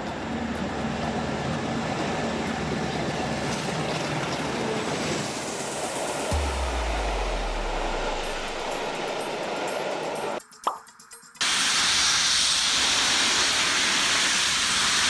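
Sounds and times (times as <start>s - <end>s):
train rushing on rails: 0.0s - 10.4s, 11.4s - 15.0s
deep low hum: 6.3s - 9.6s.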